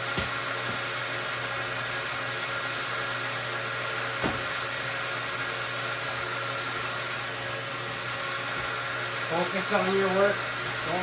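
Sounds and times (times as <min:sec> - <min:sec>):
lathe motor hum and whine: 0:00.0 - 0:11.0.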